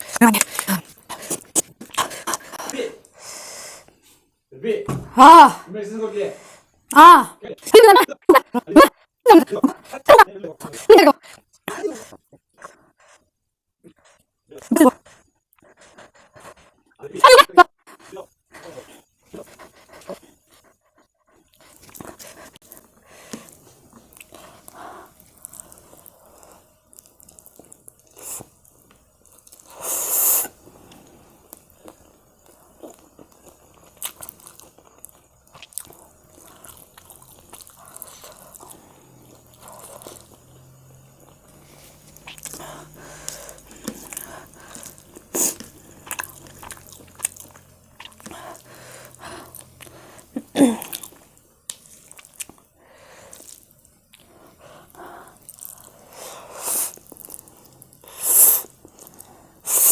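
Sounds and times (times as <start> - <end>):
person chewing and biting: 21.4 - 59.9.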